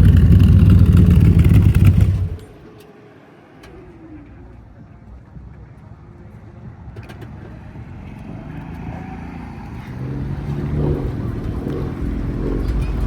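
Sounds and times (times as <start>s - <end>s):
deep low rumble: 0.0s - 2.5s
car engine approaching: 0.0s - 13.0s.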